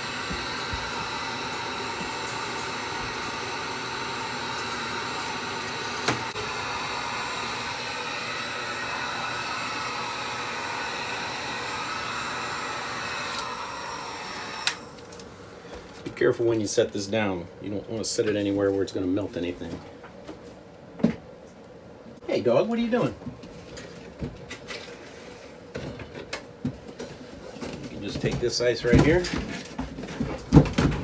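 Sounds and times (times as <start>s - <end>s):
hot-air blower running: 0.0s - 15.8s.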